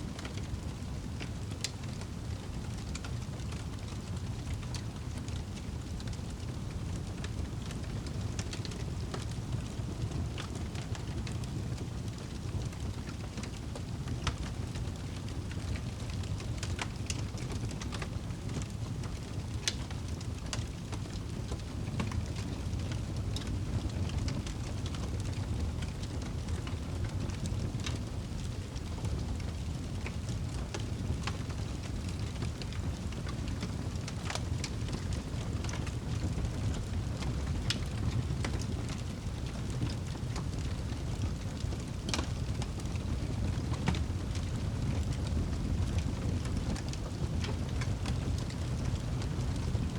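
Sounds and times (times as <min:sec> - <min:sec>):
burning wood crackling and popping: 0:00.0 - 0:49.9
fire flame rumbling: 0:00.0 - 0:49.9.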